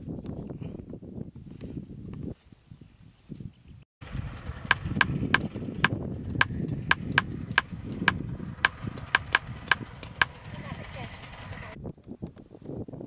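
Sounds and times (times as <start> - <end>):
cleaver chopping wood: 4.7 - 10.3.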